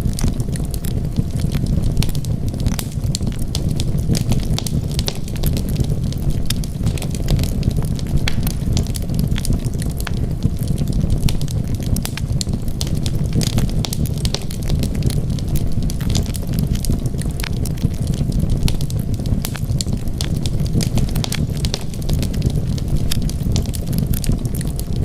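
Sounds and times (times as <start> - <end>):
low rumble of fire: 0.0 - 25.0
wood fire crackling and snapping: 0.0 - 25.0.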